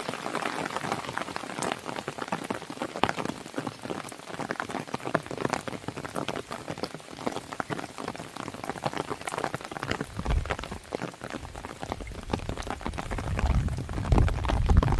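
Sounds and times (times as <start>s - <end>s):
rain pattering on a window: 0.0s - 14.9s
wood fire crackling: 9.8s - 14.9s.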